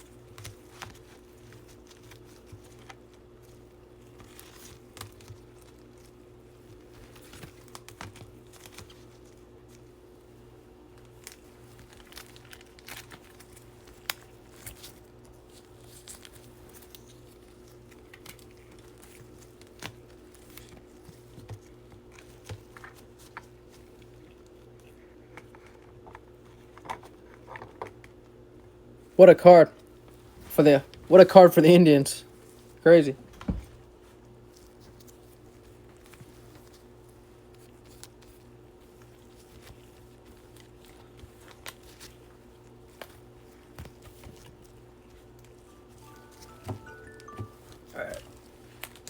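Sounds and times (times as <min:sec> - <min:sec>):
plastic sleeves crinkling: 0:00.0 - 0:09.9, 0:10.9 - 0:24.3, 0:33.9 - 0:47.7
faint hum: 0:44.7 - 0:49.0.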